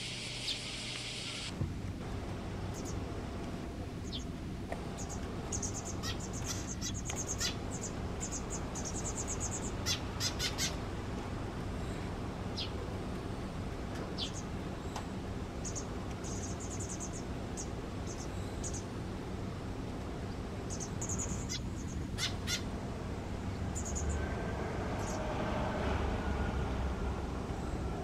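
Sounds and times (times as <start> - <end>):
steady low hum: 0.0 - 28.0
small songbirds chirping: 2.7 - 3.1, 4.0 - 4.3, 4.9 - 10.8, 11.9 - 12.8, 14.0 - 19.1, 20.2 - 22.7, 23.5 - 24.2, 25.0 - 25.3.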